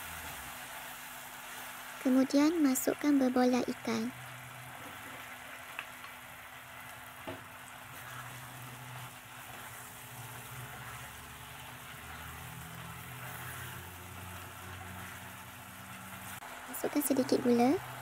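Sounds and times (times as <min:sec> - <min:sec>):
sauce sizzling in a wok: 0:00.0 - 0:18.0
spatula stirring: 0:07.8 - 0:16.4.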